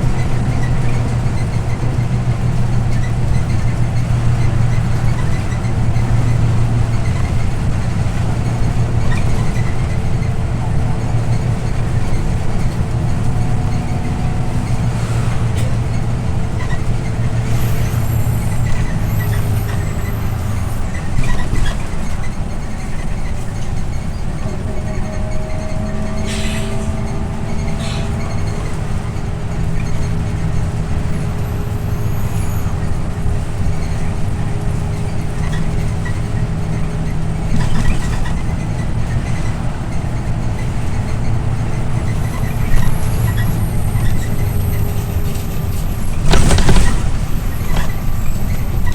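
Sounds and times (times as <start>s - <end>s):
bus engine and road drone: 0.0s - 48.9s
short high squeaks: 13.3s - 34.1s, 40.9s - 48.9s
brief hissing bursts: 26.2s - 27.1s.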